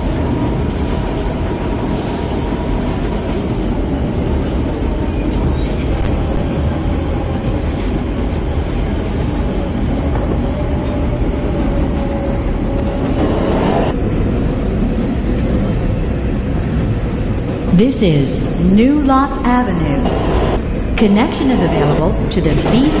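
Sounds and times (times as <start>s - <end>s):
train wheels rumbling on track: 0.0s - 23.0s
faint steady whine: 13.2s - 14.0s, 20.0s - 23.0s.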